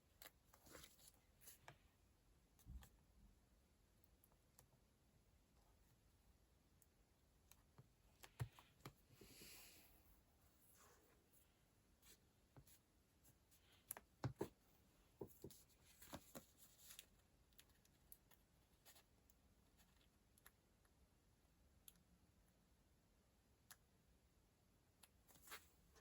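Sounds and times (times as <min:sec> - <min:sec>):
paper and stationery taps and clicks: 0:13.9 - 0:14.6.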